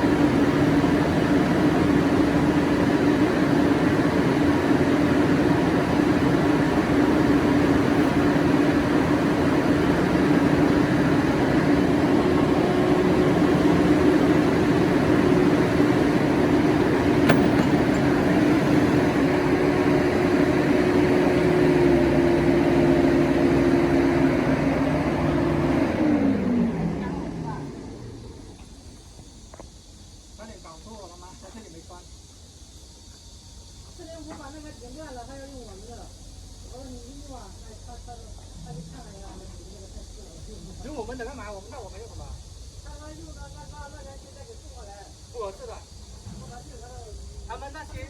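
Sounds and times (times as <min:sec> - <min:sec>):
construction machine engine: 0:00.0 - 0:29.4.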